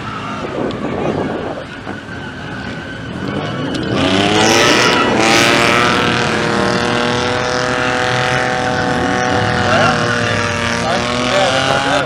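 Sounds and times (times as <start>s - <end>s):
car engine revving: 2.4s - 12.0s.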